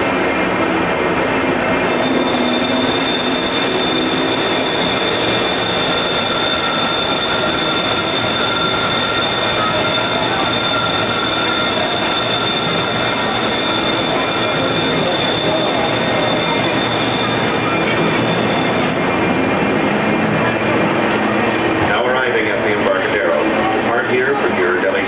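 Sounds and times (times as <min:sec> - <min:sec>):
ride train rumbling on track: 0:00.0 - 0:25.0
high-pitched wheel squeal: 0:01.7 - 0:19.7.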